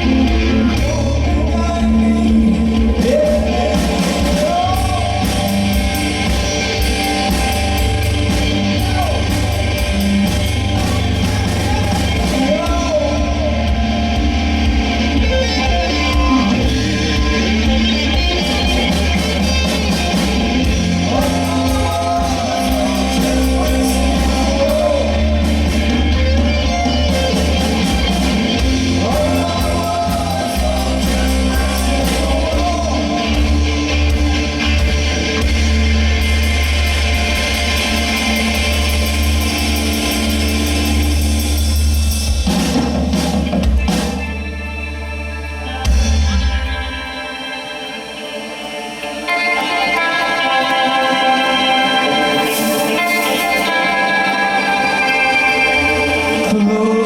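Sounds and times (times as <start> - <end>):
person singing: 0.0 - 14.3, 14.9 - 34.6, 47.4 - 57.0
bass guitar: 0.0 - 57.0
drums: 0.0 - 57.0
electric guitar: 0.0 - 57.0.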